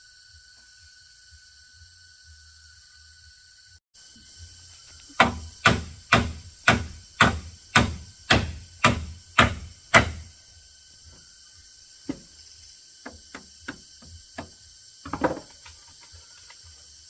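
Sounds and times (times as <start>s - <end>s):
hammer striking wood: 5.2s - 10.3s.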